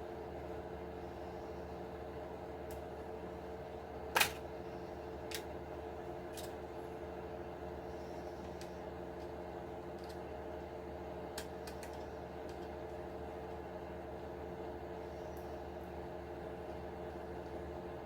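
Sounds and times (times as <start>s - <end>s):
steady electrical hum: 0.0s - 18.0s
tools and plastic parts clicking: 6.3s - 6.6s, 10.0s - 10.2s, 11.3s - 12.7s.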